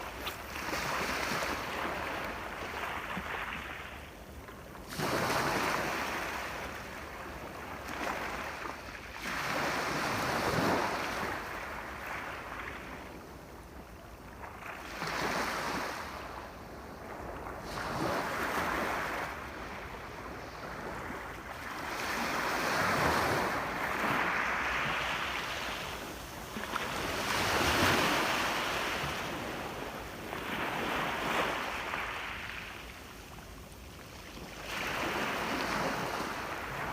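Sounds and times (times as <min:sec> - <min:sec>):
sea waves breaking: 0:00.0 - 0:04.0, 0:17.6 - 0:32.9.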